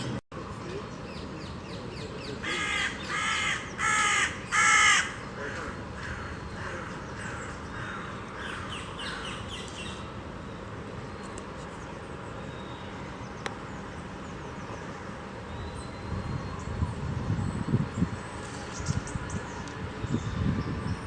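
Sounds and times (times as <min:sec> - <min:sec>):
outdoor background noise: 0:00.0 - 0:21.0
crow cawing: 0:02.4 - 0:09.4.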